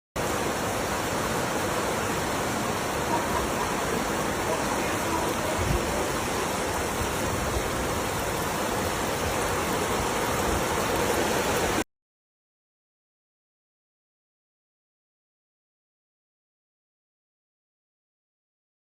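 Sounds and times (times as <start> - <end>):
flowing water rushing: 0.2 - 11.8.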